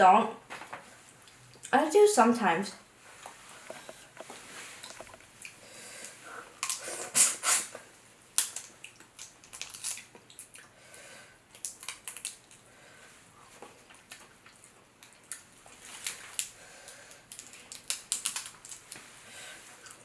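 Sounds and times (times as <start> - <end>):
wet eating sounds: 8.4 - 10.8, 13.4 - 20.0.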